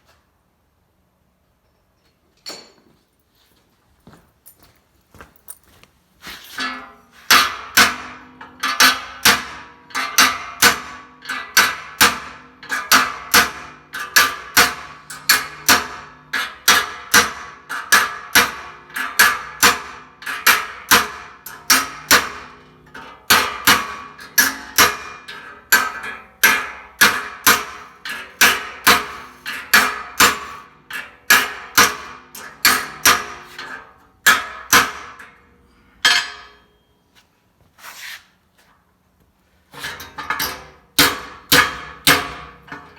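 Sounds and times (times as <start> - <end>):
hammer striking sheet steel: 6.6 - 36.9, 39.8 - 42.9.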